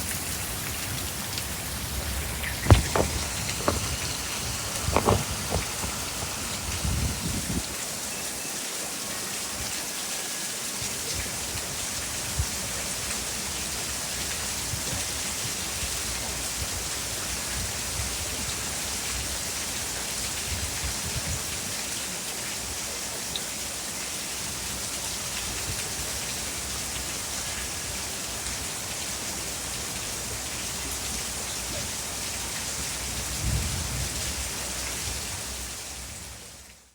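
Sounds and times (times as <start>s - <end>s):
heavy rain: 0.0s - 36.9s
low rumbles: 0.7s - 7.6s.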